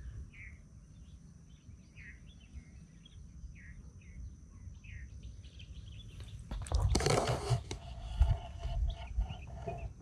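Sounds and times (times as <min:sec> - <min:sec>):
small birds chirping: 0:00.0 - 0:10.0
wind on microphone: 0:06.5 - 0:10.0.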